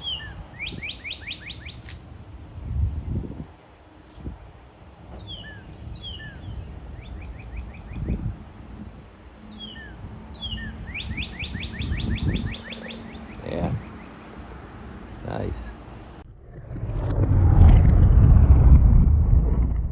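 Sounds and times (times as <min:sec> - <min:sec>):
cardinal singing whistles: 0:00.0 - 0:01.8, 0:09.5 - 0:14.2
low rumbling: 0:14.7 - 0:19.9.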